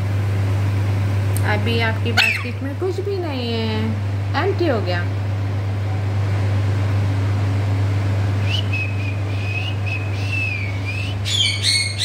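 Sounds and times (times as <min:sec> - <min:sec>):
parrot squawk: 0:02.2 - 0:02.6, 0:11.2 - 0:12.0
parrot whistling high note: 0:02.2 - 0:02.6, 0:08.5 - 0:12.0.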